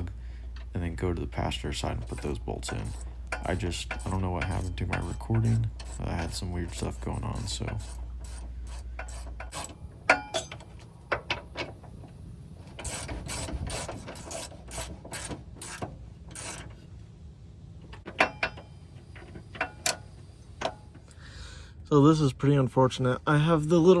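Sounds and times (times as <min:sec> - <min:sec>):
hand ratchet clicking: 0:02.0 - 0:10.6.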